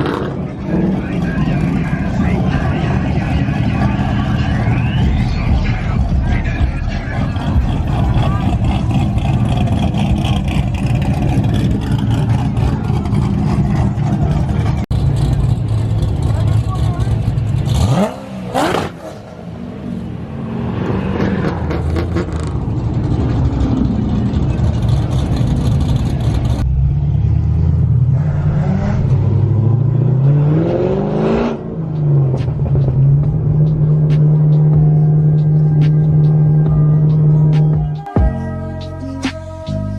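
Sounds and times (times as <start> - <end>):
loud vehicle engine exhaust: 0.0 - 39.9
car engine revving hard: 17.6 - 19.6, 28.0 - 37.5.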